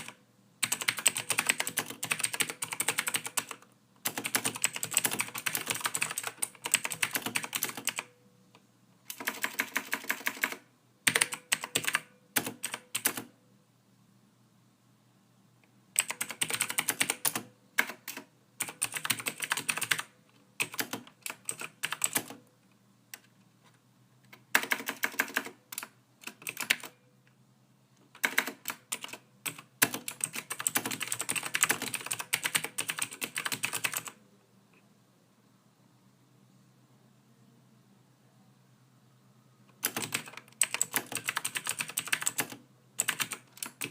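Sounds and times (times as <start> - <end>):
typing on computer keyboard: 0.0 - 8.2, 9.1 - 13.3, 16.0 - 22.4, 24.3 - 27.0, 28.1 - 34.2, 39.7 - 43.9.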